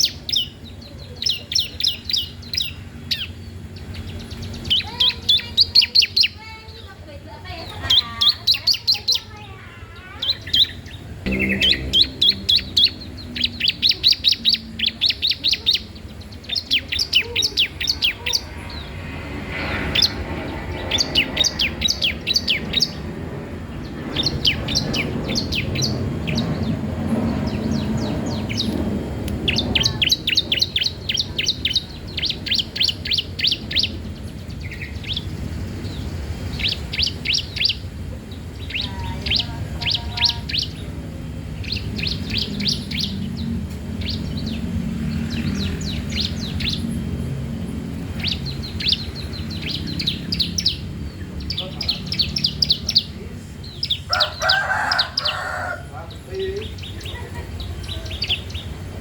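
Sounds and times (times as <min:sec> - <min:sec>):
songbird chirping: 0:00.0 - 0:59.0
low background rumble: 0:08.9 - 0:32.8.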